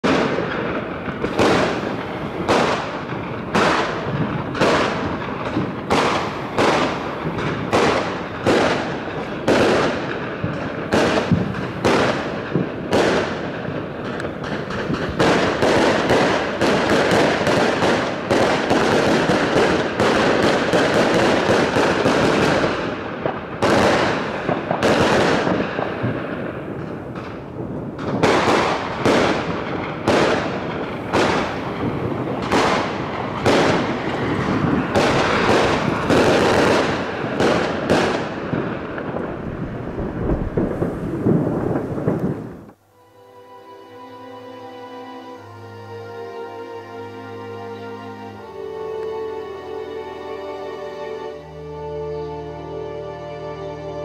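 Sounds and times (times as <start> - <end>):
fireworks bangs and crackles: 0.0 - 42.8.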